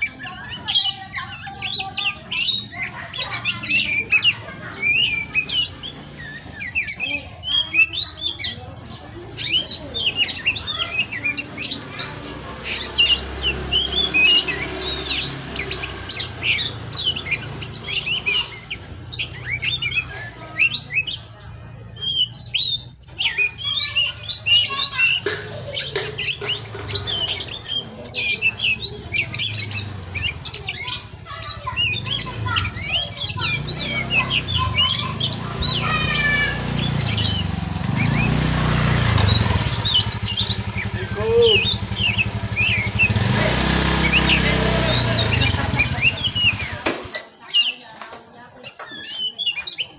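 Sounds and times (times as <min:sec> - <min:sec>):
songbird singing chirps and whistles: 0:00.0 - 0:49.9.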